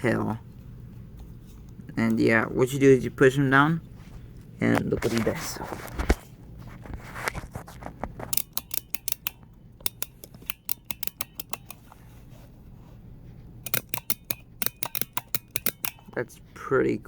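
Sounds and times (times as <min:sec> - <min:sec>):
plastic toy clicking: 0:08.2 - 0:12.0, 0:13.6 - 0:16.2.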